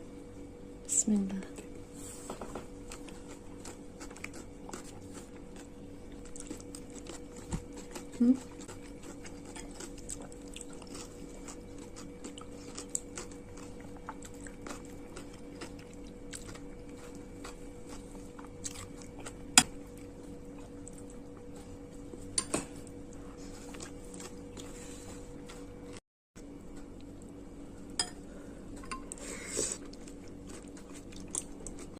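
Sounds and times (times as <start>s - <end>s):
steady low hum: 0.0s - 31.9s
close chewing with mouth clicks: 2.8s - 21.8s, 29.1s - 31.9s.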